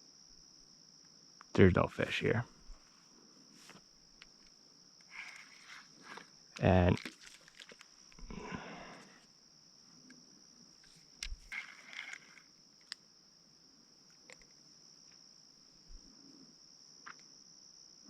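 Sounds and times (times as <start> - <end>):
insects trilling: 0.0 - 18.0
small clicks: 4.2 - 8.2, 10.8 - 13.1, 14.1 - 15.2.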